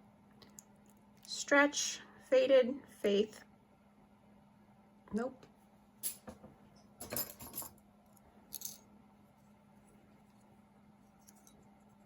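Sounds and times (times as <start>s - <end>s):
jewelry clinking and rattling: 7.0s - 7.8s, 8.5s - 8.9s.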